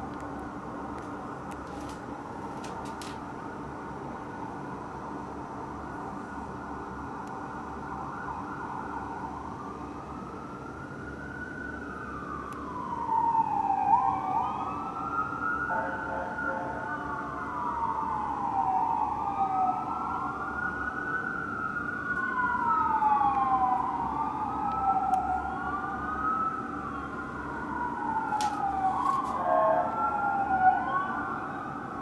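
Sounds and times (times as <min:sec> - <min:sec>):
electronic sirens wailing: 0:07.8 - 0:32.0.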